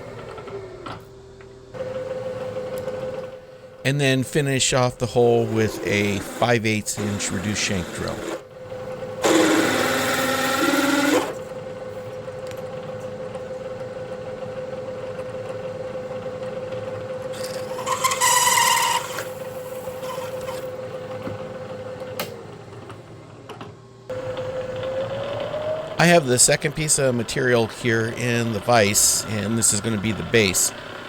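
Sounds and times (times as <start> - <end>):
milling machine spindle hum: 0.0 - 31.0
drill cutting and squealing: 4.9 - 8.5, 9.2 - 11.4, 17.3 - 20.8, 25.1 - 31.0.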